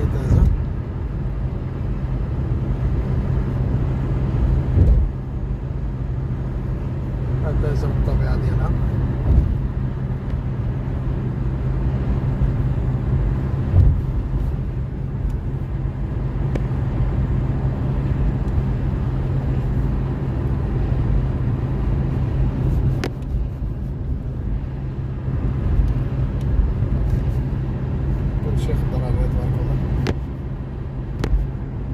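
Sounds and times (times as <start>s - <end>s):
vehicle engine and road rumble: 0.0s - 31.9s
brief thump: 4.8s - 5.1s, 9.2s - 9.6s, 13.7s - 14.1s.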